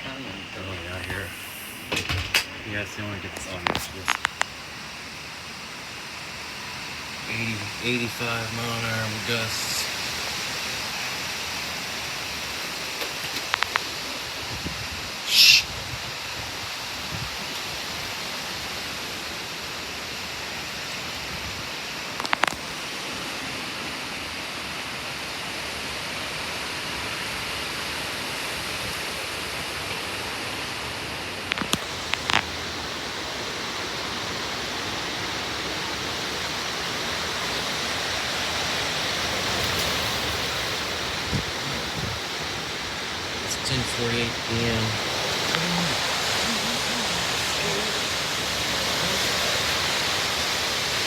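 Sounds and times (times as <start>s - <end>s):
sharp clicks: 3.4s - 4.6s
strong wind rushing: 14.3s - 17.5s, 31.8s - 51.0s.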